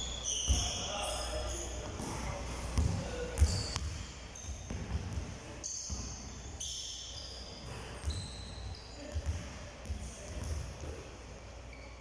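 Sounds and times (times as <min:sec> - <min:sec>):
short high squeaks: 0:00.0 - 0:01.8, 0:05.6 - 0:09.1, 0:11.6 - 0:12.0
basketball bouncing on hard floor: 0:02.8 - 0:05.3, 0:09.1 - 0:11.0.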